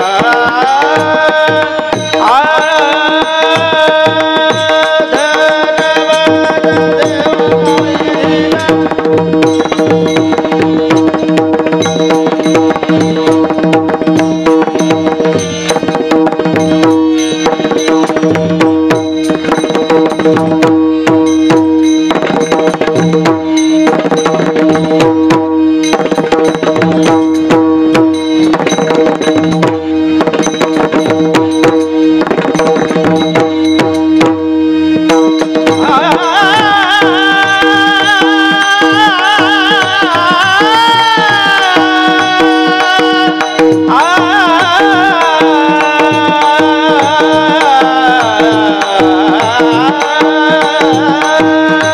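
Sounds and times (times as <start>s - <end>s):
person singing: 0.0s - 10.6s, 35.5s - 51.9s
fast hand drum strokes: 0.0s - 51.9s.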